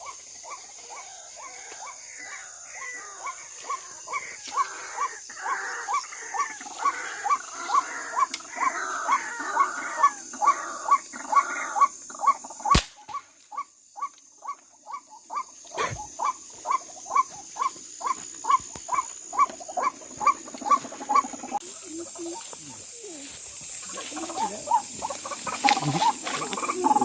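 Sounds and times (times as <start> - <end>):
air rifle shot: 12.7 - 13.1
waterhen calling: 13.5 - 27.0.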